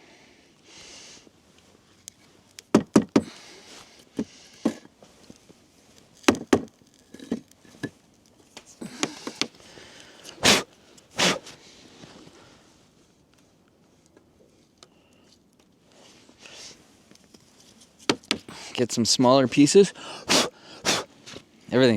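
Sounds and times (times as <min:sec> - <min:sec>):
firewood knocking and clattering: 0:02.1 - 0:03.3, 0:06.2 - 0:08.0, 0:18.0 - 0:18.5.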